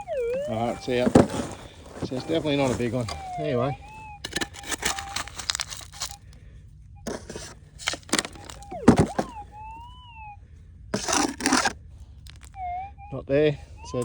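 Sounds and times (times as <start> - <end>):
metal detector tones: 0.0 - 6.3, 7.0 - 10.3, 11.0 - 12.9, 13.6 - 14.0
gravelly dirt scraping: 0.0 - 6.5, 7.1 - 9.5, 11.0 - 12.6.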